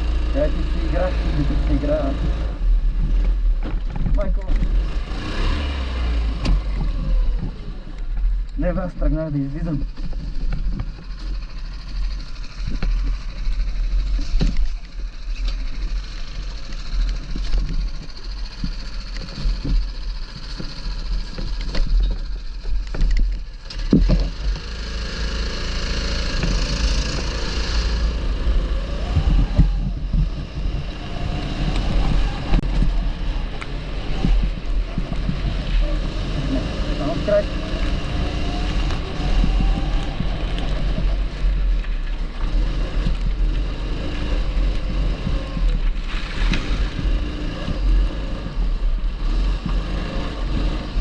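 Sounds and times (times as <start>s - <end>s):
go-kart engine: 0.0s - 51.0s
wind buffeting on microphone: 26.3s - 51.0s.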